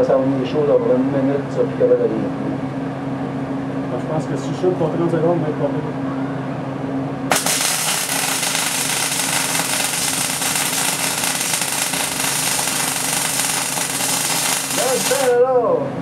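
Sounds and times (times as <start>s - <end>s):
welder arc crackling: 7.3s - 15.4s.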